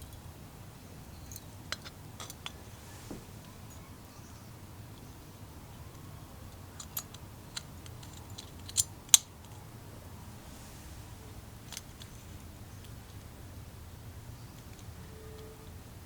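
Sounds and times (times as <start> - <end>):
low steady hum: 9.5 - 15.6.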